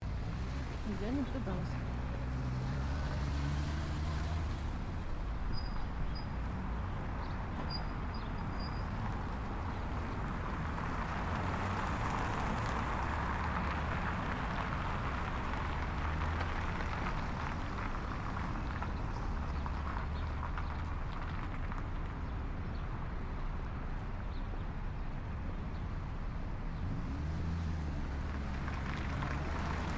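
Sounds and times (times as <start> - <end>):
vehicle passing: 0.0 - 4.9, 26.8 - 29.9
street traffic noise: 0.0 - 29.9.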